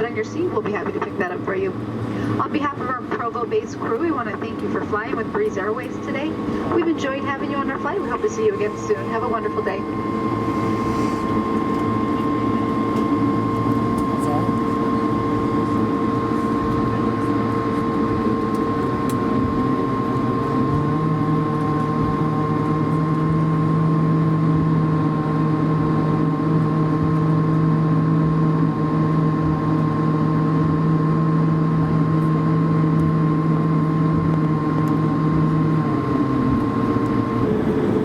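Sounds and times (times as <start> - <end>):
aircraft cabin engine hum: 0.0 - 38.0
low drone: 0.0 - 38.0
thin high whine: 8.6 - 15.2.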